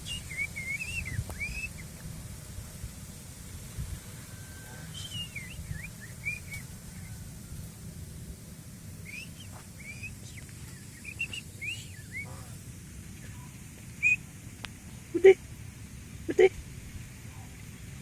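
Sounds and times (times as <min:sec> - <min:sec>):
small birds chirping: 0:00.0 - 0:01.9, 0:04.7 - 0:07.2, 0:09.1 - 0:15.5
steady low rumble: 0:00.0 - 0:18.0.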